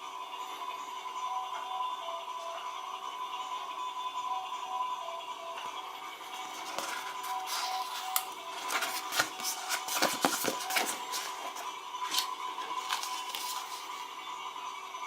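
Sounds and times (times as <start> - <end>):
toy packaging being opened: 6.3 - 14.0.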